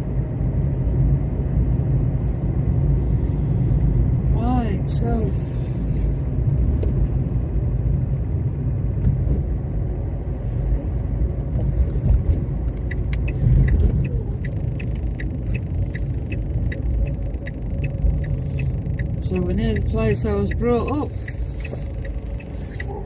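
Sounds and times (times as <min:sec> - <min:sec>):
car road and engine rumble: 0:00.0 - 0:23.0
light regular ticking: 0:11.1 - 0:23.0.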